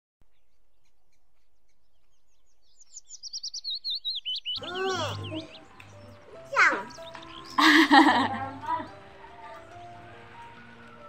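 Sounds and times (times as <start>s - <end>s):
small birds chirping: 0.2s - 11.0s
music with sliding tones: 4.6s - 11.0s.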